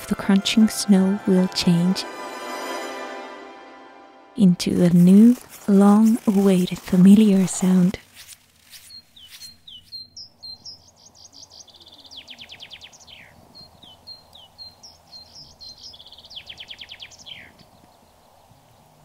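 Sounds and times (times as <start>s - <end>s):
songbird singing trill: 5.6s - 18.8s.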